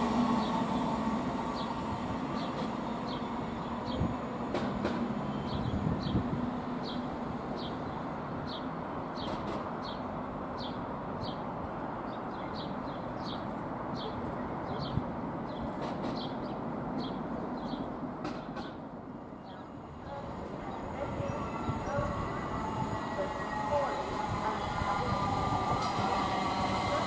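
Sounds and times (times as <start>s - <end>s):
electric train running hum: 19.6s - 27.0s.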